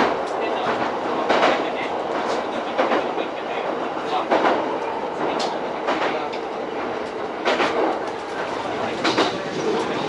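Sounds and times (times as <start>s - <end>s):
train wheels clacking over rail joints: 0.0s - 3.2s, 4.2s - 10.0s
train running noise: 0.0s - 10.0s.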